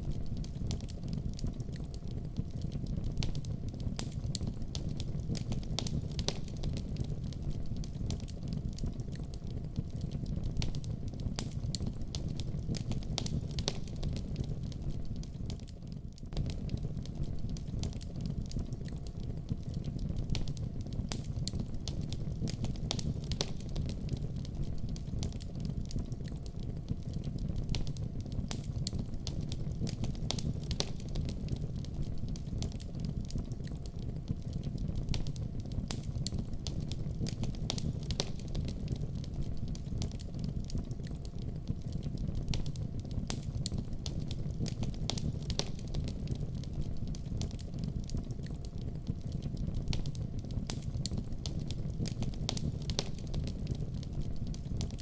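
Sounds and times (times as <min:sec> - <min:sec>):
low rumble of flames: 0:00.0 - 0:55.0
wood fire crackles and pops: 0:00.0 - 0:55.0.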